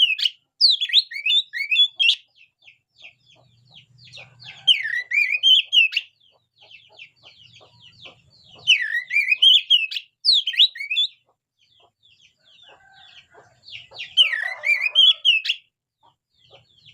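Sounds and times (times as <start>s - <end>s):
bird singing whistled notes: 0.0s - 2.4s, 4.1s - 6.4s, 7.2s - 11.2s, 13.8s - 15.6s
bird chattering softly: 0.0s - 16.9s.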